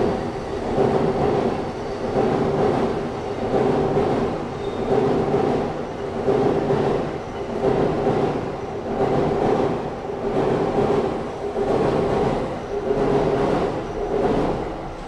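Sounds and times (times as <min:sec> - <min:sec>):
train wheels rolling past: 0:00.0 - 0:15.0.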